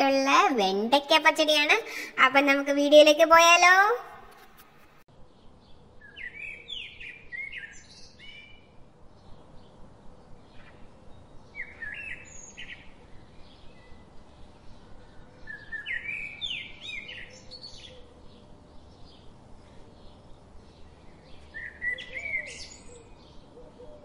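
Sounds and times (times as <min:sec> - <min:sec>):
songbird chirping: 0:05.2 - 0:24.0
faint steady hum: 0:07.1 - 0:24.0.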